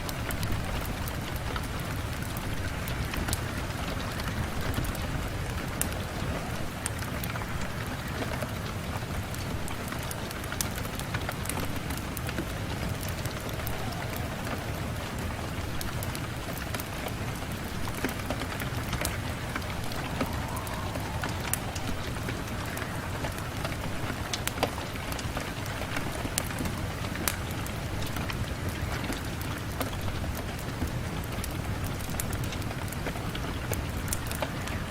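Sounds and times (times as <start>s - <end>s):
rain on window: 0.0s - 34.9s
low rumble: 12.1s - 24.4s.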